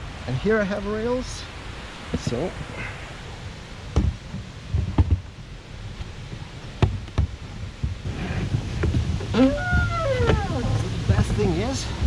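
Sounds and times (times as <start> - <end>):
dull knocks on hard case: 3.9 - 5.3, 6.8 - 8.0.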